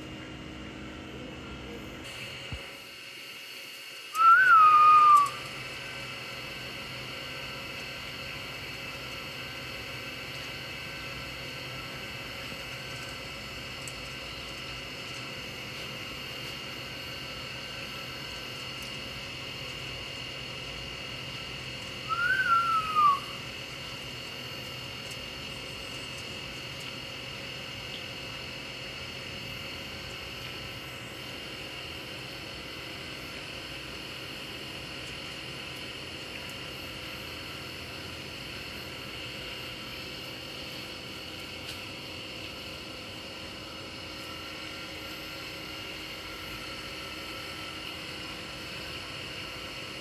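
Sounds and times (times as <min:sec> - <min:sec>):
parrot whistling: 0:04.2 - 0:05.4, 0:22.1 - 0:23.4.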